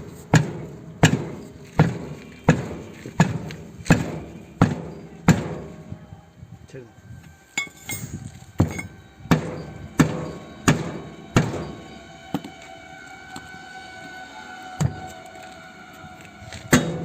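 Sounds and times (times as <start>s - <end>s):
hammer striking tractor tyre: 0.1s - 5.8s, 7.6s - 12.7s, 14.8s - 15.1s, 16.6s - 17.0s
steady ringing tone: 4.3s - 15.0s.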